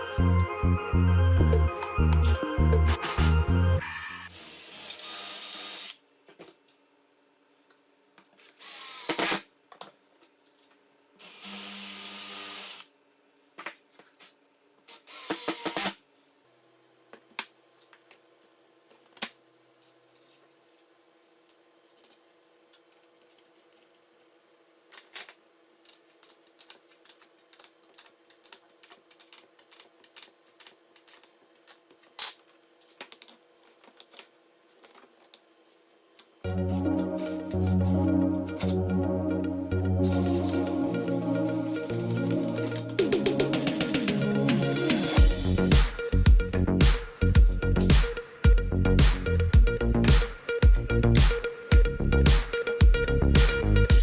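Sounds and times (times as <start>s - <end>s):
electric drill running: 4.3s - 6.0s, 8.6s - 9.4s, 11.2s - 12.9s, 14.9s - 16.0s.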